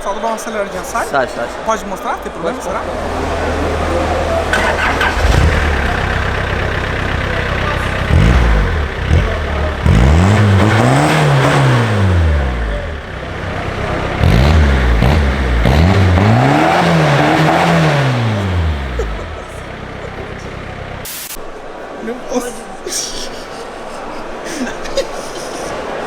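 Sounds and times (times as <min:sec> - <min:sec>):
diesel car engine revving: 0:02.3 - 0:21.3.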